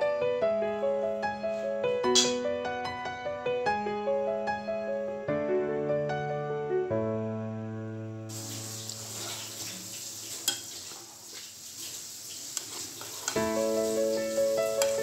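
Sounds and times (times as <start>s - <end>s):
piano music: 0.0s - 10.6s, 13.2s - 15.0s
meatballs sizzling in hot oil: 8.3s - 15.0s.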